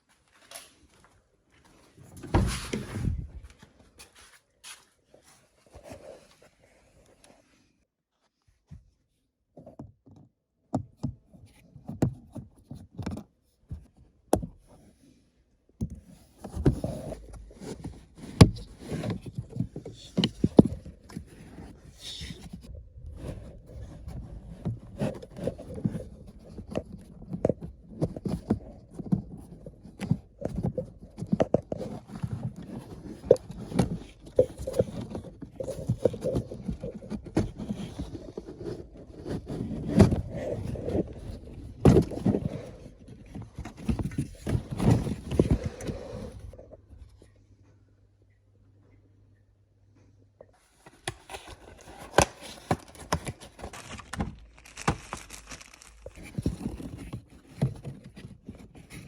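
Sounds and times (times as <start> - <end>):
plastic rustling and scraping: 16.0 - 46.7, 50.6 - 59.0.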